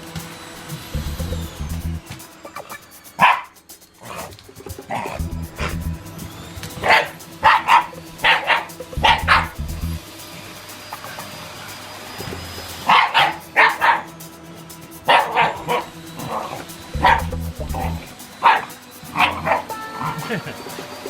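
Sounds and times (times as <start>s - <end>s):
dog barking: 3.2s - 3.5s, 6.8s - 9.4s, 12.9s - 14.1s, 15.1s - 15.9s, 18.4s - 20.2s.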